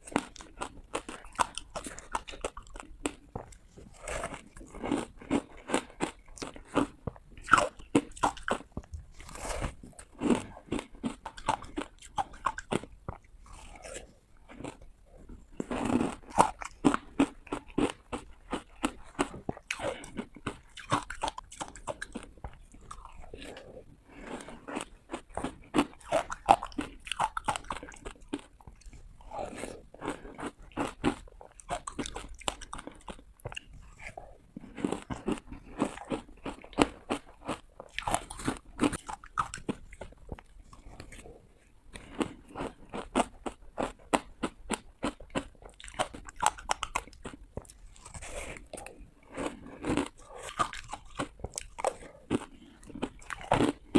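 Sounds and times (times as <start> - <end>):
ice crunching between teeth: 0.0 - 14.9, 15.5 - 23.6, 24.3 - 41.3, 42.0 - 53.9.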